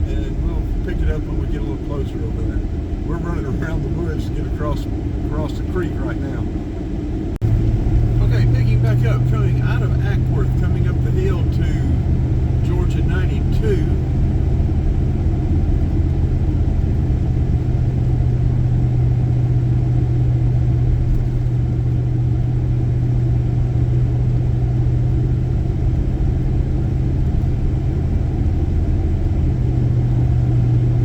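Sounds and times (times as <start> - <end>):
car engine drone: 0.0 - 31.0.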